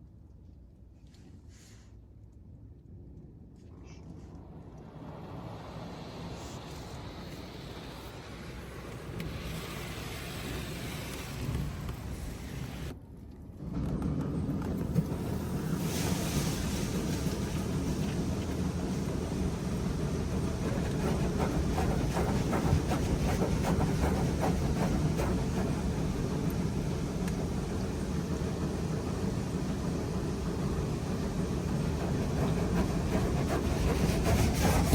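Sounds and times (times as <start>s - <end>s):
car wash low rumble: 0.0s - 34.9s
water jets spraying on car: 5.0s - 12.9s, 14.9s - 34.9s.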